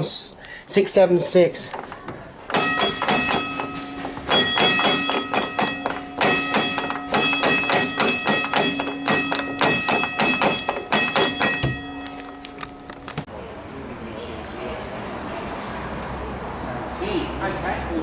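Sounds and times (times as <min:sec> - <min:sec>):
tram bell clanging: 0:02.5 - 0:13.2.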